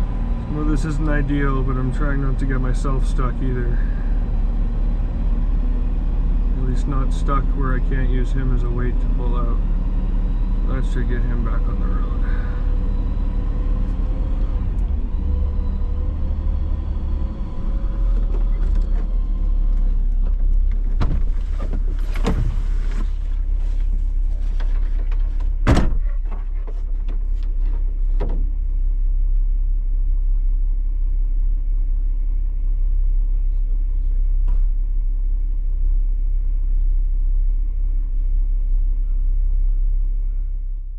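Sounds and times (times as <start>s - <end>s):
whining tone: 0.0s - 22.6s
vehicle engine low rumble: 0.0s - 40.9s
sharp clunks: 20.8s - 23.1s, 25.0s - 26.7s.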